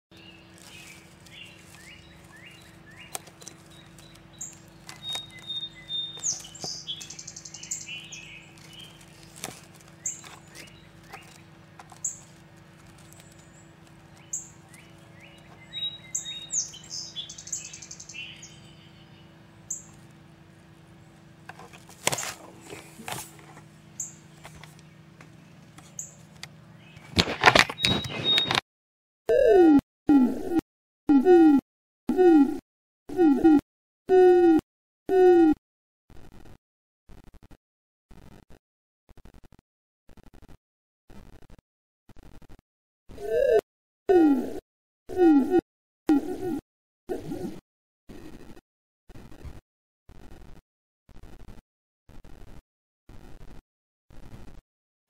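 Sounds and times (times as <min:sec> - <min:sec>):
low hum: 0:00.1 - 0:28.5
small birds chirping: 0:00.1 - 0:28.6.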